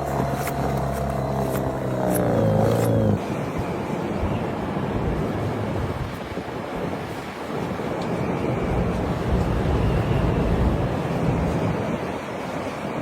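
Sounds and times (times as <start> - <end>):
engine running: 0.0 - 3.3
steady rushing noise: 0.0 - 13.0.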